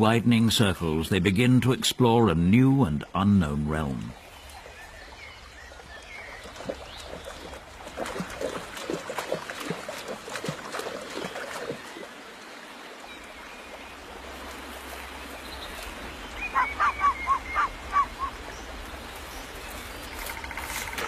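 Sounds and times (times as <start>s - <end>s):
waterfowl calling: 16.4s - 18.7s.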